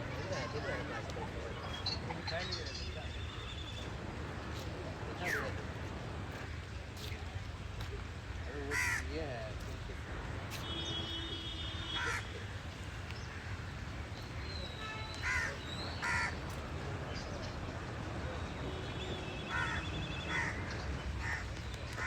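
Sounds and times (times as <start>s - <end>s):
birds making harsh calls: 8.7s - 9.1s, 15.1s - 17.2s, 19.5s - 22.0s.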